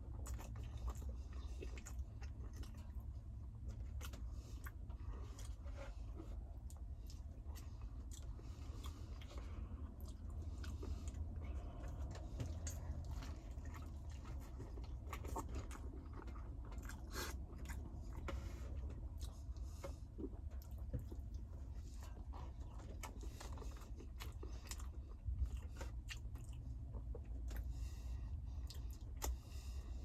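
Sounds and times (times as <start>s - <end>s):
low steady hum: 0.0s - 30.0s
person chewing and eating: 0.0s - 30.0s.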